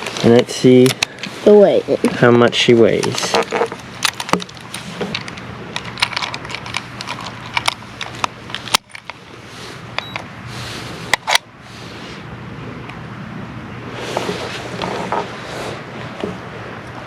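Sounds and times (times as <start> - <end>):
sharp handling clicks and clatter: 2.0 - 9.2
steady low hum: 3.3 - 14.0.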